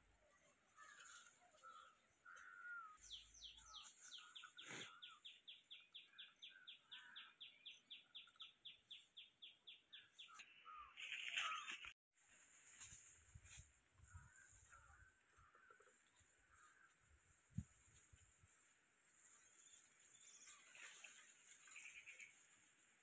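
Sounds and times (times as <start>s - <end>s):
soft bird chirps: 0.8s - 11.9s, 19.3s - 22.5s.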